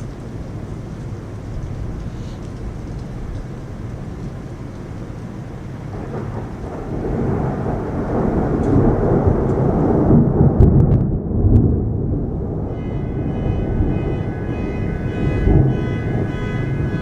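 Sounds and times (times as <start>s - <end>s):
heavy rain: 0.0s - 17.0s
rolling thunder: 5.7s - 17.0s
sharp thunder cracks: 5.9s - 17.0s.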